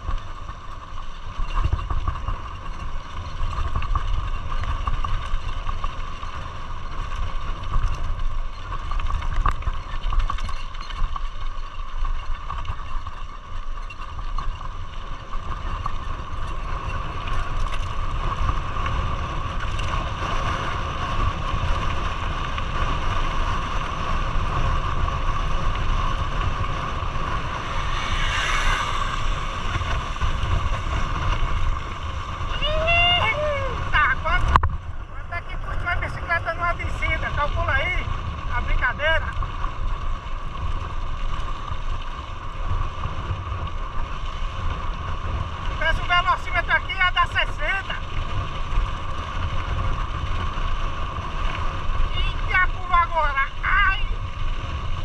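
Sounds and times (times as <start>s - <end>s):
vehicle engine running: 0.0s - 55.0s
low rumble: 20.8s - 55.0s.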